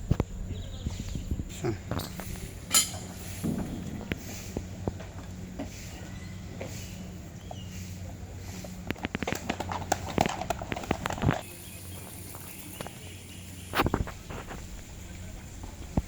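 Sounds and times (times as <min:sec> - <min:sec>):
steady low hum: 0:00.0 - 0:16.0
heavy thud: 0:03.3 - 0:04.3.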